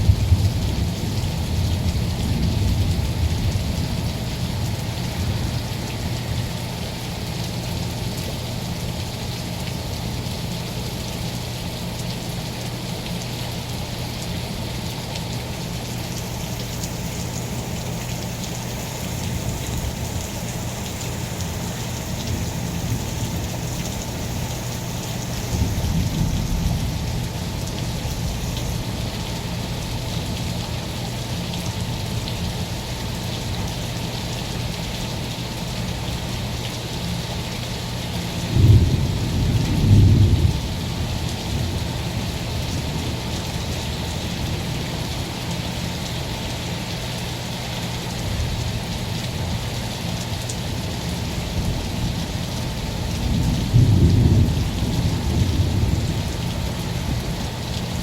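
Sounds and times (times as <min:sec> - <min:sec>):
thunder rumbling: 0:00.0 - 0:06.8, 0:16.1 - 0:29.3, 0:38.5 - 0:42.3, 0:53.0 - 0:57.6
steady rain: 0:00.0 - 0:58.0.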